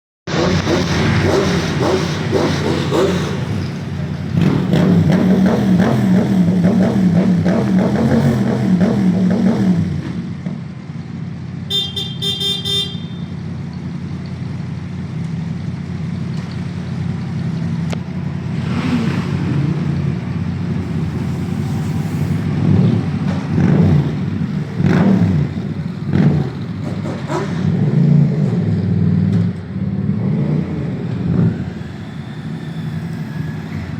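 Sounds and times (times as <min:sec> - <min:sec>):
motorcycle engines revving: 0:00.3 - 0:33.9
horn toot: 0:11.7 - 0:13.4.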